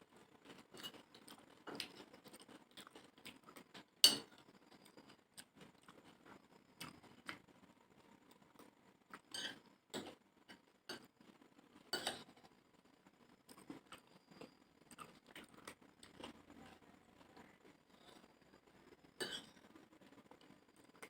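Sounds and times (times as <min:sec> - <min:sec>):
chewing: 0:00.4 - 0:07.5, 0:13.5 - 0:16.8
cutlery clinking on plate: 0:04.0 - 0:04.3, 0:09.3 - 0:10.2, 0:19.2 - 0:19.6.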